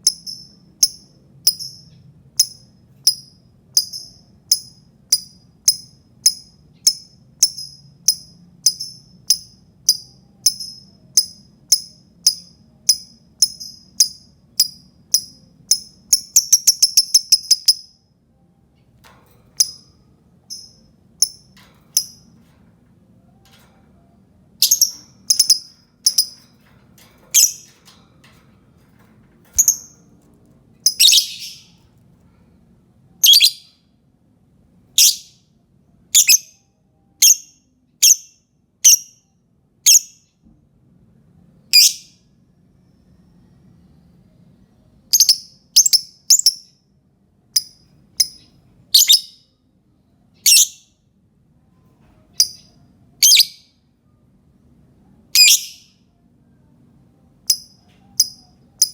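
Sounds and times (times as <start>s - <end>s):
lovebird chirping: 0.0s - 18.0s, 24.6s - 26.5s, 27.3s - 27.8s, 29.6s - 30.0s, 30.8s - 31.8s, 33.2s - 33.8s, 35.0s - 35.4s, 36.1s - 36.6s, 37.2s - 39.2s, 39.9s - 40.2s, 41.8s - 42.1s, 45.1s - 46.7s, 47.6s - 49.5s, 50.4s - 50.9s, 52.4s - 53.7s, 55.3s - 56.0s, 57.5s - 58.9s.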